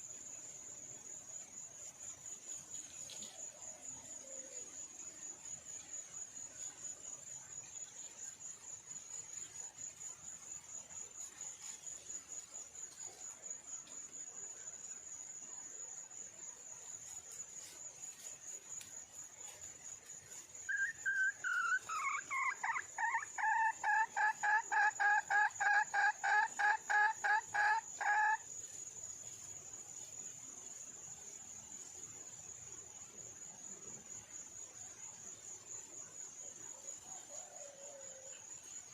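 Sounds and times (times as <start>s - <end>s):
hen clucking call: 20.7s - 28.4s.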